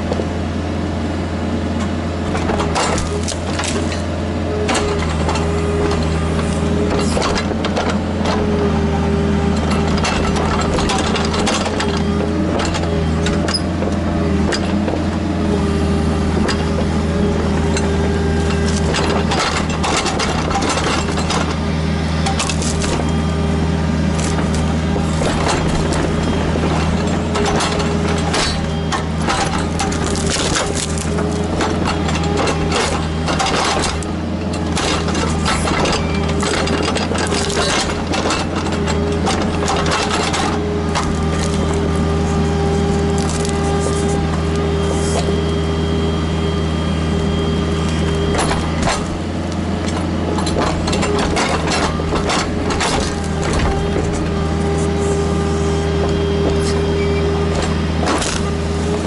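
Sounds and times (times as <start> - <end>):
excavator diesel engine running: 0.0 - 59.0
cracks knocks and crunches: 22.2 - 23.2, 24.1 - 44.6.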